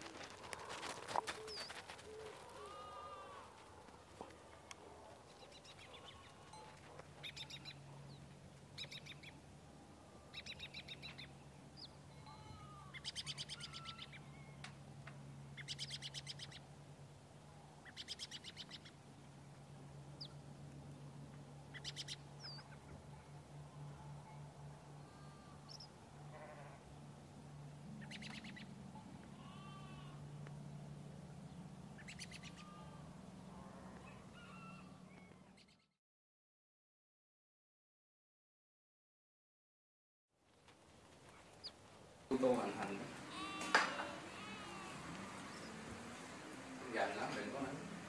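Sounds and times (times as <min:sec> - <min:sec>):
faint low hum: 0:00.0 - 0:35.7
birds calling in rapid trills: 0:00.8 - 0:03.5, 0:05.3 - 0:09.4, 0:10.1 - 0:14.7, 0:15.5 - 0:16.7, 0:17.8 - 0:19.0, 0:21.7 - 0:24.3, 0:25.0 - 0:26.0, 0:27.9 - 0:30.0, 0:31.9 - 0:33.0, 0:33.9 - 0:35.9, 0:41.5 - 0:48.0.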